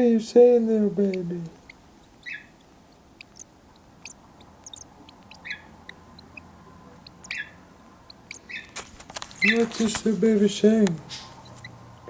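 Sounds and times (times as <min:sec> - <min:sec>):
cockatiel chick peeping: 0:00.0 - 0:12.0
buzzy chick calls: 0:00.9 - 0:12.0.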